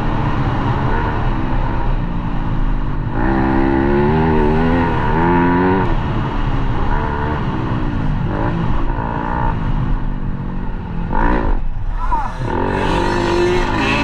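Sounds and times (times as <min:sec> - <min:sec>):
dirt bike engine revving: 0:11.1 - 0:14.0.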